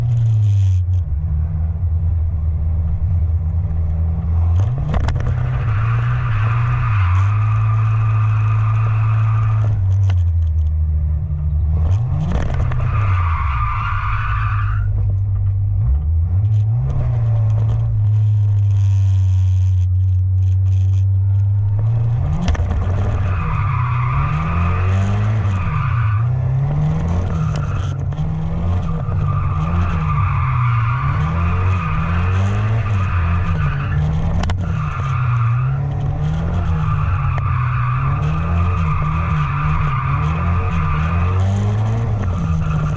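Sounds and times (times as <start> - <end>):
truck engine revving: 15.8 - 42.9.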